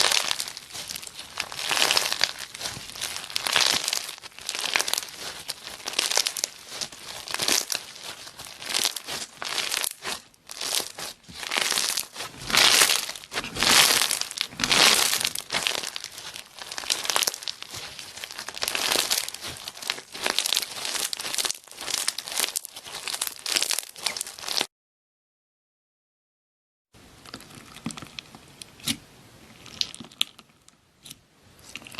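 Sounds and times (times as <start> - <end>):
slime crackling squeezed by hand: 0.0 - 24.7.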